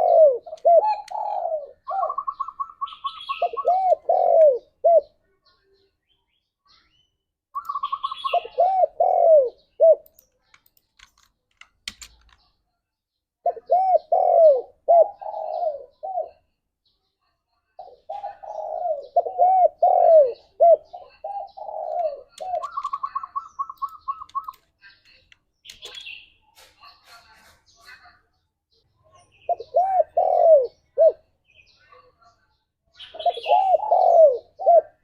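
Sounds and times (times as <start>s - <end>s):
dove cooing: 0.0s - 5.2s, 7.6s - 10.1s, 13.4s - 16.5s, 17.8s - 24.6s, 29.5s - 31.2s, 33.0s - 35.0s.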